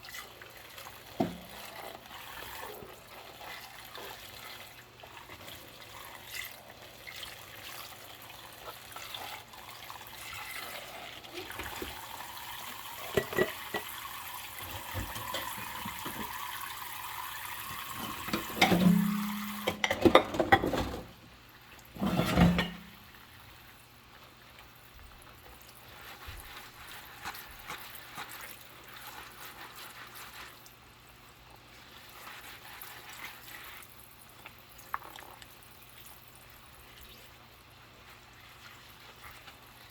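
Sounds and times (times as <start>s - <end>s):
tap water running into sink: 0.0s - 21.1s
dishes clinking: 13.1s - 14.0s, 14.8s - 16.3s, 18.0s - 21.1s, 22.0s - 23.0s.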